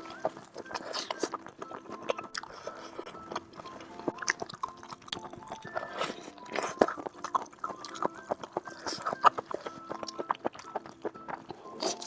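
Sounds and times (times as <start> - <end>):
chewing and crunching food: 0.0 - 12.0
soft background music: 0.0 - 12.0.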